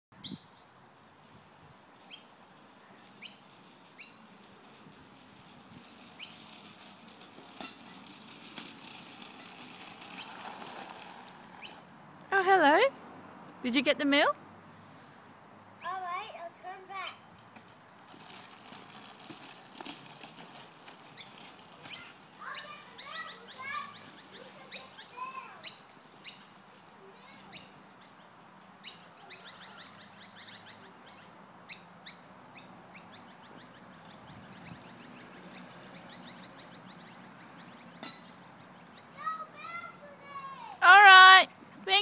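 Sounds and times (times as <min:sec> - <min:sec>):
birds chirping: 0:02.0 - 0:04.4, 0:05.8 - 0:06.7, 0:11.4 - 0:12.9, 0:13.7 - 0:17.5, 0:21.0 - 0:40.2.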